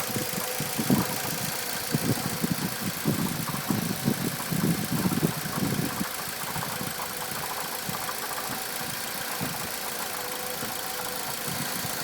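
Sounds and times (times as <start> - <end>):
car engine idling with knocking: 0.0 - 12.0.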